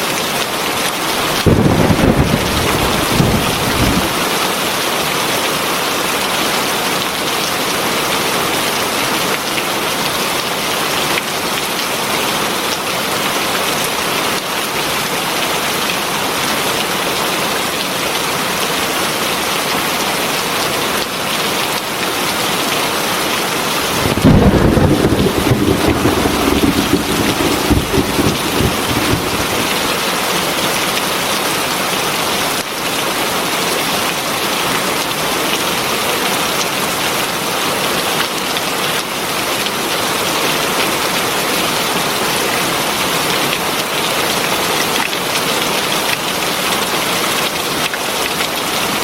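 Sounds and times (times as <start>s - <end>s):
heavy rain pouring: 0.6s - 17.3s, 23.3s - 31.4s
low rumble: 23.8s - 30.1s.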